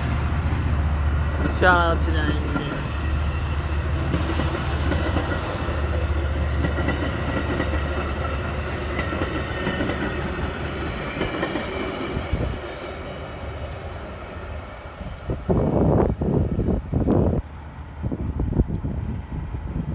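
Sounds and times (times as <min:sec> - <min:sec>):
passing train rumbling: 0:00.0 - 0:19.9
train wheel clatter: 0:01.2 - 0:13.3.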